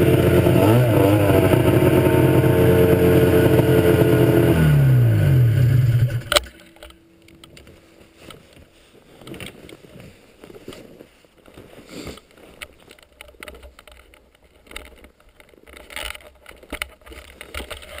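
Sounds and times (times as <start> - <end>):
snowmobile engine cutting off: 0.0 - 6.4
faint outdoor background noise: 0.0 - 18.0.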